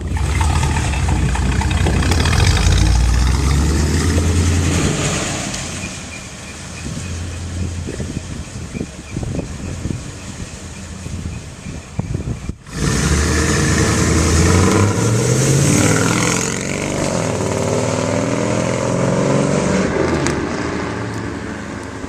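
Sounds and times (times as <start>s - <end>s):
car engine running: 0.0s - 4.6s
wind on microphone: 0.0s - 6.1s, 6.7s - 15.6s.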